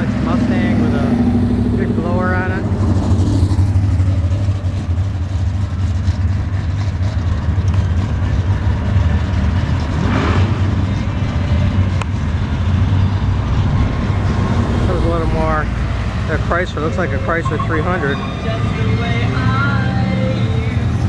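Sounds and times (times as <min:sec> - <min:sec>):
car engines rumbling: 0:00.0 - 0:21.0.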